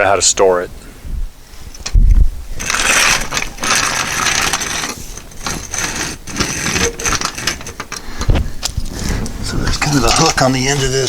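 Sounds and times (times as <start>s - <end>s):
metal jack clinking and rattling: 2.6s - 8.9s.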